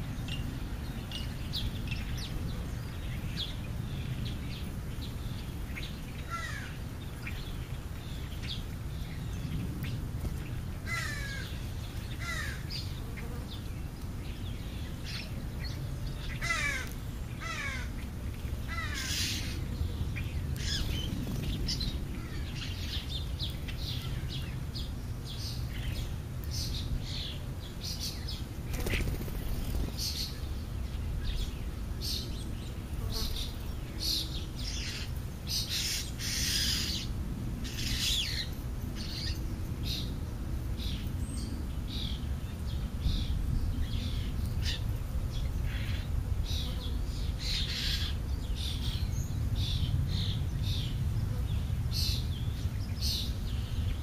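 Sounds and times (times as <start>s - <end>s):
birds chirping: 0.0s - 40.2s
louder noisy bird calls: 0.0s - 40.2s, 40.8s - 54.0s.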